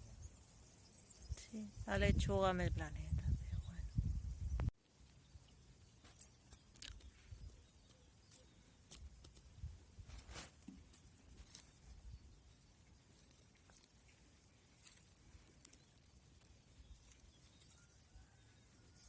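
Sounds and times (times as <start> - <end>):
faint clicks and ticks: 14.8 - 17.8.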